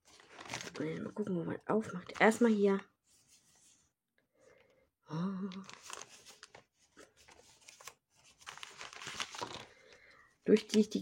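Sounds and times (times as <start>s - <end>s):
packaging crinkling and clicking: 5.7s - 9.8s.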